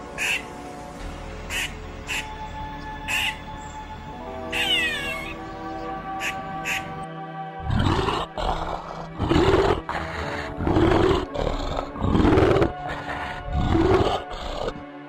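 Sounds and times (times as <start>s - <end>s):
background music: 0.0s - 15.0s
bear growls: 7.6s - 14.9s.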